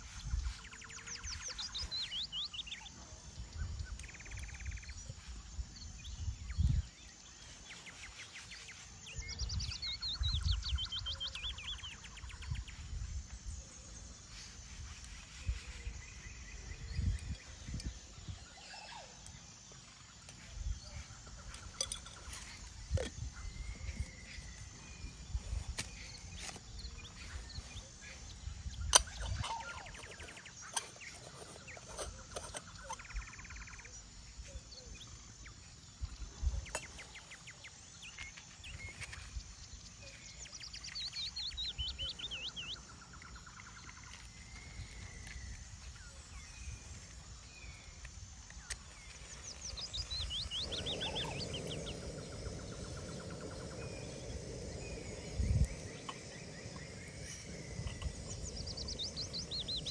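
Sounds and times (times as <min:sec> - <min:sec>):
wind gusts on microphone: 0:00.0 - 0:01.4, 0:15.4 - 0:18.5, 0:49.0 - 0:59.9
bird calls: 0:20.4 - 0:35.6, 0:46.2 - 0:59.9.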